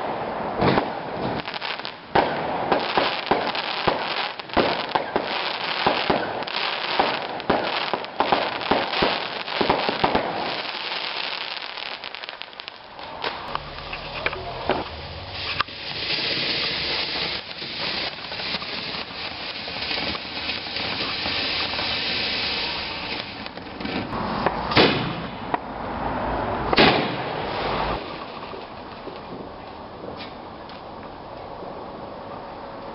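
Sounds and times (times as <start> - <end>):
fireworks bangs and crackles: 0.0 - 25.7, 26.7 - 30.9
fireworks hiss: 0.6 - 25.4.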